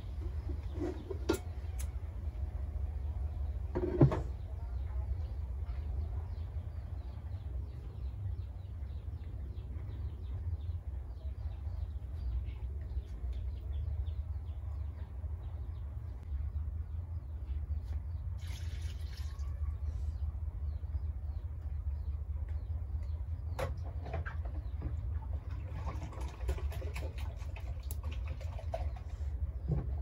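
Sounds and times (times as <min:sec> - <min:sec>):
birds chirping: 0:00.0 - 0:30.0
steady low rumble: 0:04.4 - 0:18.4.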